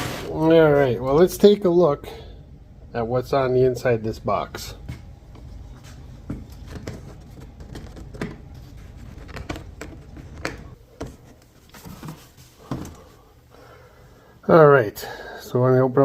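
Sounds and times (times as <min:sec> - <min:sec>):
box packaging clicks and rustles: 0:06.3 - 0:13.0.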